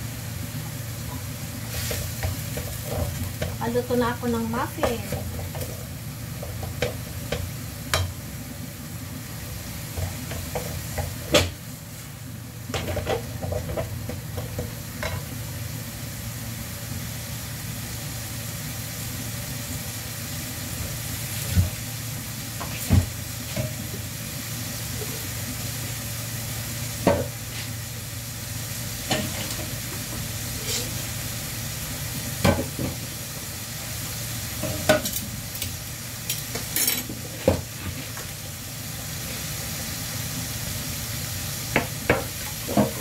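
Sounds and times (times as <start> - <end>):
food sizzling in a wok: 0.0 - 43.0
wooden spatula scraping a pan: 30.6 - 31.1.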